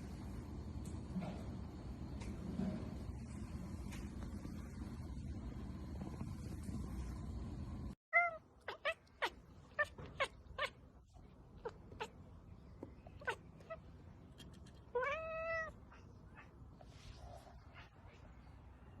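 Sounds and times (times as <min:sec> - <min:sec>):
cat meowing: 0:08.2 - 0:10.8, 0:14.9 - 0:16.0.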